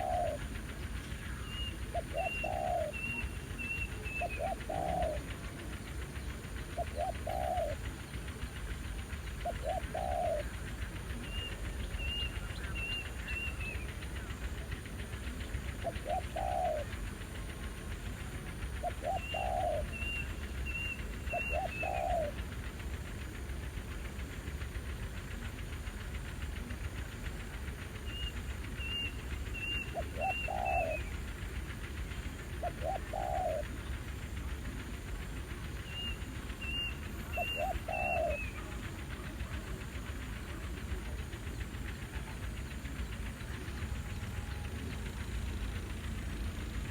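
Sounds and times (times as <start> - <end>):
doves cooing: 0.0 - 0.6, 1.2 - 5.7, 6.6 - 8.0, 9.2 - 13.6, 15.3 - 17.5, 18.2 - 22.6, 29.6 - 31.5, 32.4 - 34.9, 35.7 - 41.3.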